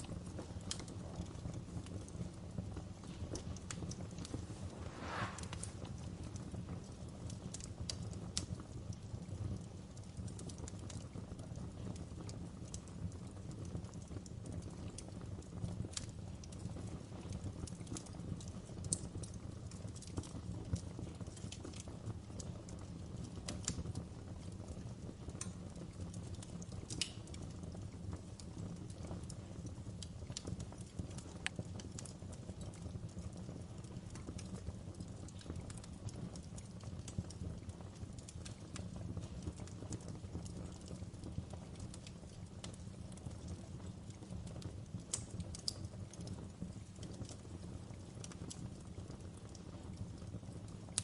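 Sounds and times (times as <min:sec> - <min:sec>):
fire crackling and popping: 0:00.0 - 0:51.0
low rumble: 0:04.2 - 0:06.0.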